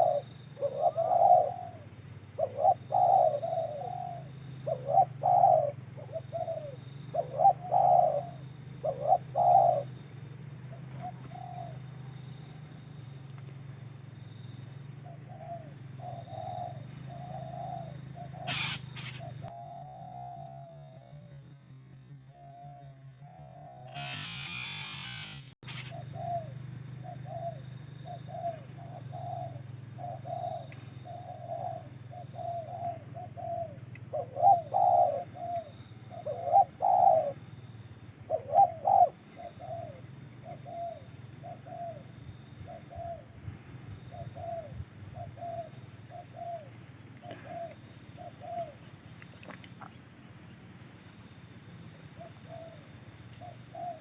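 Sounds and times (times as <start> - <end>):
dove cooing: 0.0 - 12.2, 15.0 - 21.4, 22.4 - 37.5, 38.2 - 43.4, 44.0 - 48.9, 52.1 - 54.0.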